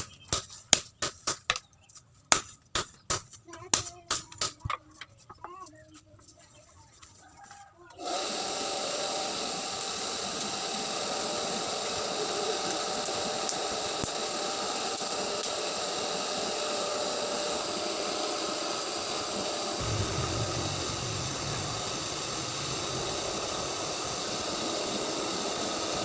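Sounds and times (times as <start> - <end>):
machine motor hissing and whining: 8.0 - 26.0.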